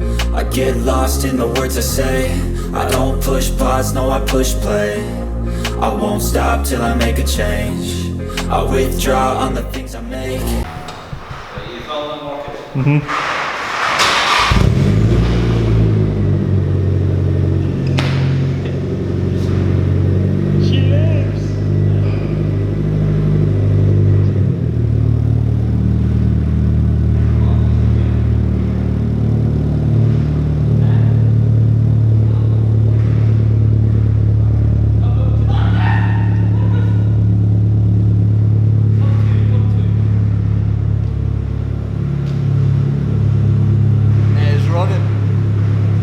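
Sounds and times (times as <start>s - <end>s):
turbocharged car engine running: 13.1s - 35.6s.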